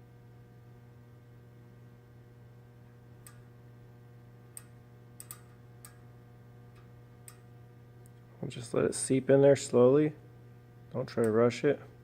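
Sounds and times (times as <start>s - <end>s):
low electrical hum: 0.0s - 12.0s
light sharp clicks: 4.6s - 6.0s.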